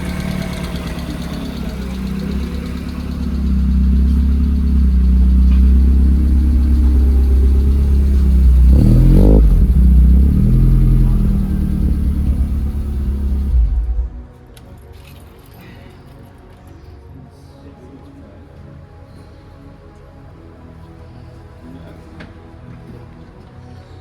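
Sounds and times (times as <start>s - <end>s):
car engine running: 0.0s - 14.4s
engine revving: 0.0s - 14.4s.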